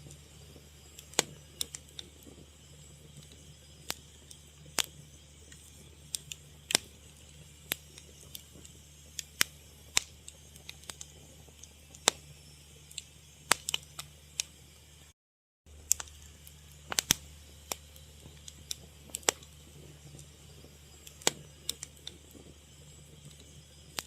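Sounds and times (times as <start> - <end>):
wood fire crackling: 0.0 - 15.1, 15.7 - 24.0
low hum: 15.7 - 24.0.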